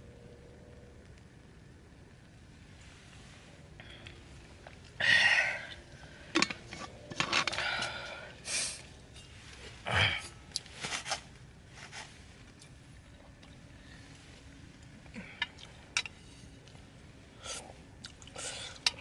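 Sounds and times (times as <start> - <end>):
rustling: 8.6 - 13.1.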